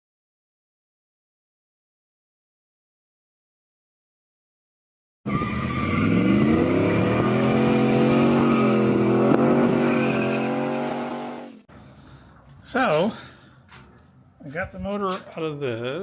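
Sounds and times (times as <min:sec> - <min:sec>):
vehicle engine revving: 0:05.3 - 0:12.1.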